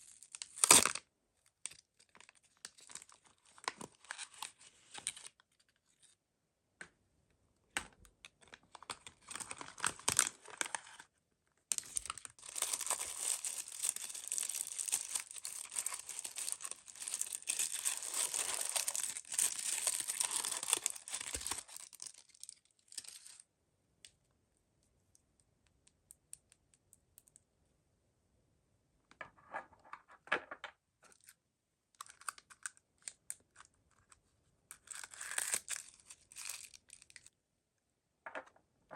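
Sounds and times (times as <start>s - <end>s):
plastic packaging crinkling: 11.7s - 23.4s, 34.9s - 37.3s.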